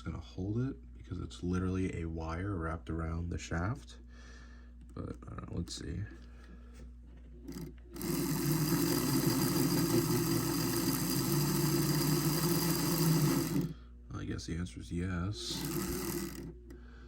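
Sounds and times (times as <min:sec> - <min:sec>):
model train motor whirring: 0:07.5 - 0:13.7, 0:15.4 - 0:16.7.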